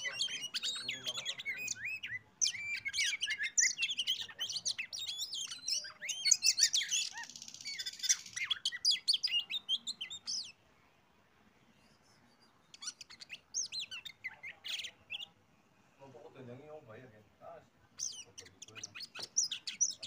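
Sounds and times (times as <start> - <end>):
magpie-robin whistling song: 0.0 - 10.6, 11.6 - 15.4, 18.0 - 20.0.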